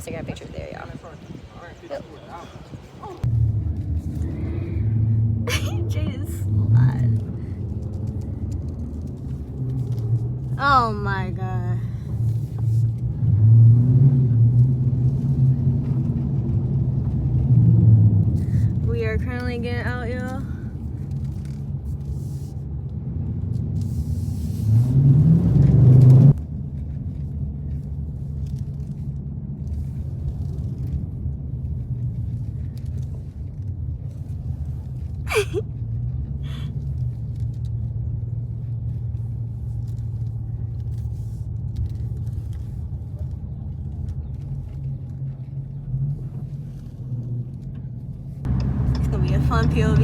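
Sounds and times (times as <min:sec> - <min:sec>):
car engine revving: 0:12.9 - 0:20.4, 0:24.0 - 0:26.4, 0:48.5 - 0:50.0.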